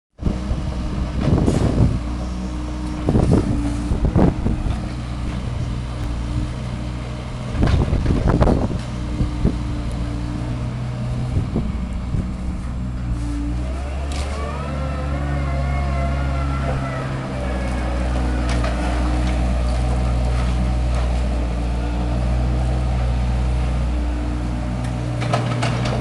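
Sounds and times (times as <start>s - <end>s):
excavator diesel engine running: 0.2s - 26.0s.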